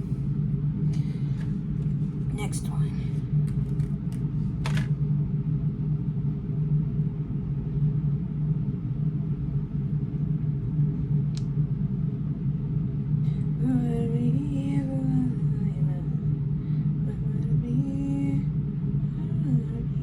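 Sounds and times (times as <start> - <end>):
low rumble and hum of ship cabin: 0.0 - 20.0
faint click: 11.3 - 11.5.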